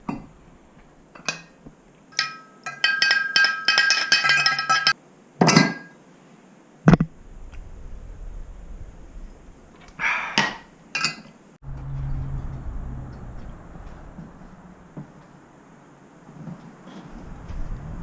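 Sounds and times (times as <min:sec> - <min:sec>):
metal objects clinking: 0:01.2 - 0:05.9
faint low rumble: 0:07.0 - 0:10.0, 0:11.6 - 0:16.0, 0:17.0 - 0:18.0.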